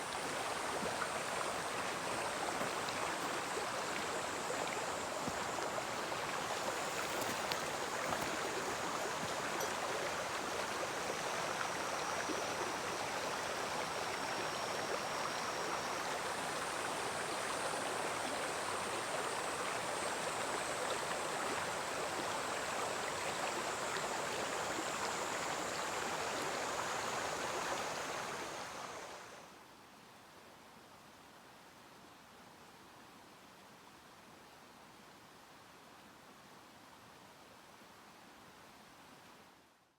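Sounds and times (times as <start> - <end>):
stream flowing over rocks: 0.0 - 29.4.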